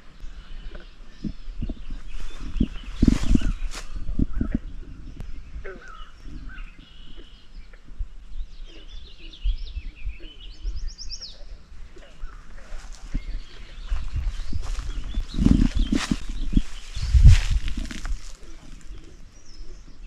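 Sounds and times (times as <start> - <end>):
birds chirping and calling: 0.0 - 20.0
low rumble: 12.6 - 19.1.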